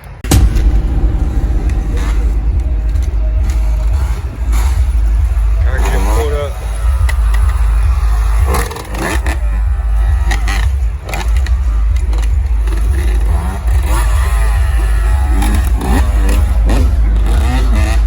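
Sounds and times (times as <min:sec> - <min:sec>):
low rumble: 0:00.2 - 0:08.2.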